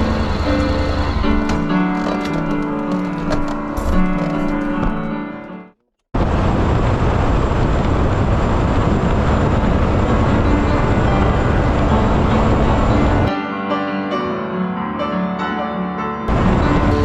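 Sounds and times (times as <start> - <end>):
wind and road noise: 6.2 - 13.3.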